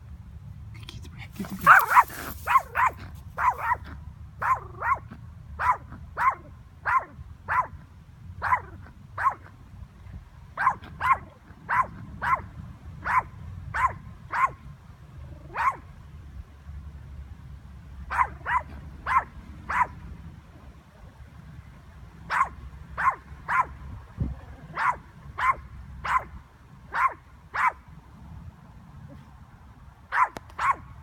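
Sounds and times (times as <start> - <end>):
small dog yapping: 1.4 - 7.7, 8.4 - 9.5, 10.6 - 12.4, 13.0 - 14.6, 15.3 - 15.8, 18.1 - 19.9, 22.3 - 23.7, 24.6 - 26.3, 26.9 - 27.8, 30.1 - 30.8.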